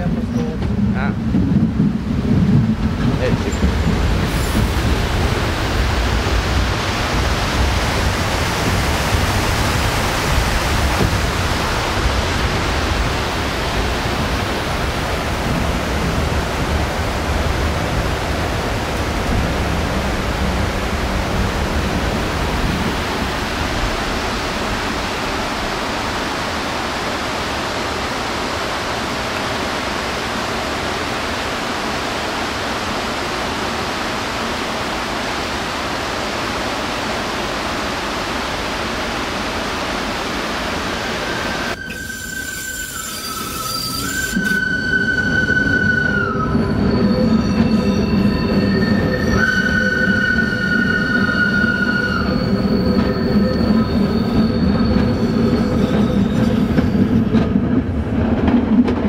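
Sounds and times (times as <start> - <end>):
heavy low rumble: 0.0 - 26.6
train running over bridge: 0.0 - 59.0.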